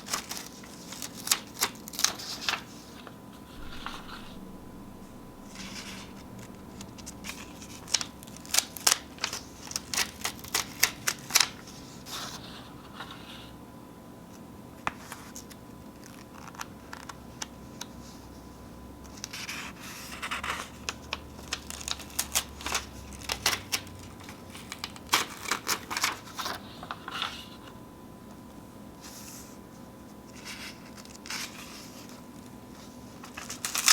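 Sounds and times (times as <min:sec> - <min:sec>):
paper tearing and crinkling: 0:00.0 - 0:03.0, 0:03.6 - 0:04.6, 0:05.4 - 0:11.7, 0:33.2 - 0:33.9.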